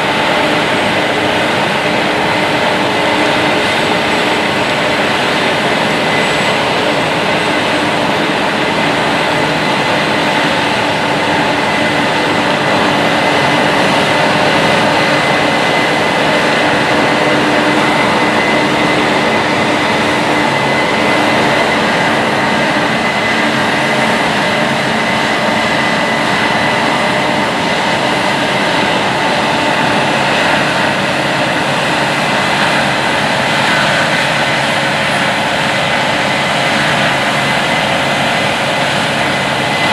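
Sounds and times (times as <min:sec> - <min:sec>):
diesel machinery running: 0:00.0 - 0:39.9
high-pitched whine: 0:00.0 - 0:39.9.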